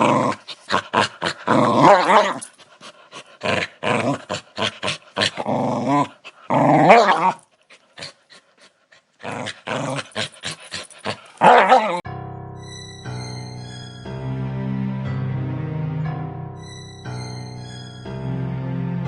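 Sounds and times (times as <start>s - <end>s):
dog growling: 0.0s - 8.4s, 9.2s - 12.0s.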